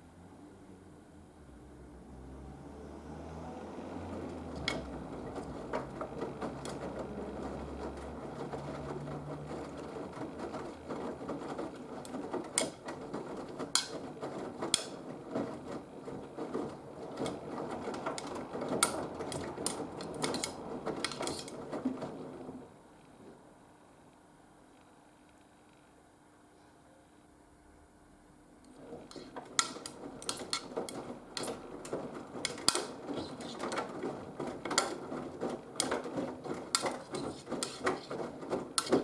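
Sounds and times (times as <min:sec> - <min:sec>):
washing machine drum churning: 0:02.2 - 0:23.6, 0:28.7 - 0:39.0
clicks and knocks in drum: 0:04.1 - 0:23.4, 0:28.7 - 0:39.0.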